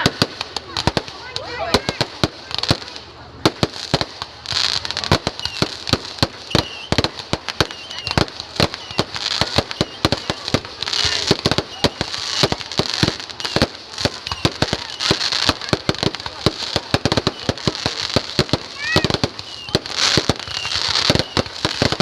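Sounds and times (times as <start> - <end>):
fireworks bangs and pops: 0.0 - 22.0
hissing crackle: 0.0 - 22.0.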